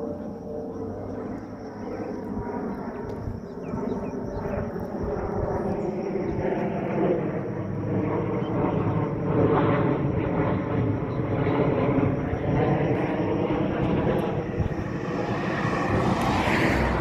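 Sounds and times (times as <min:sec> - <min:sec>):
engine drone: 0:12.9 - 0:17.0.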